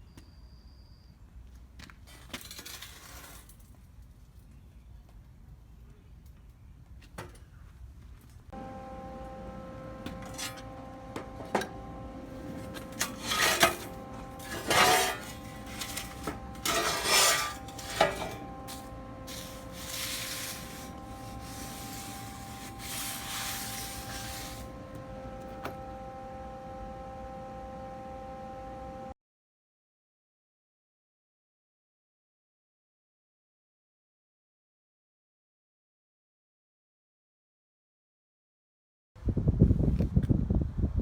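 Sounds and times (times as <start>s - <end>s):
machine hum: 8.5s - 29.2s
metal scraping and clattering: 10.1s - 24.7s.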